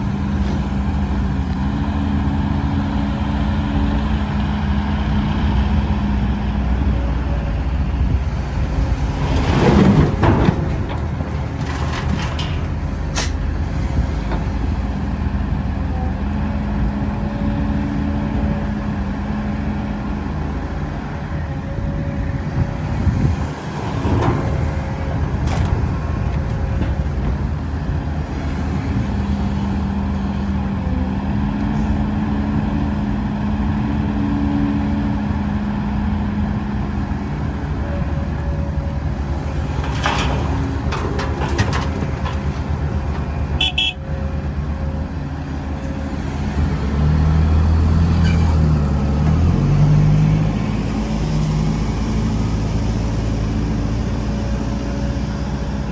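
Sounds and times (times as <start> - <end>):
diesel machinery engines: 0.0 - 55.9.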